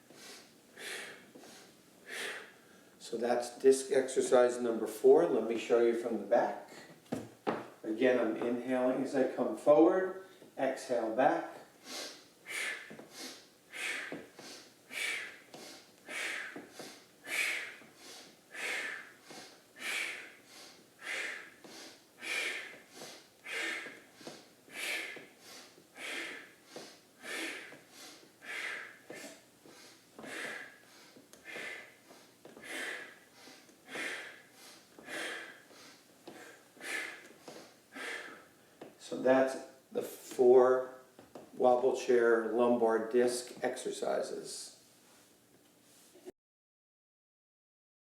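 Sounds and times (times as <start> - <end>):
person breathing hard through nose: 0.0 - 2.9, 11.8 - 38.6.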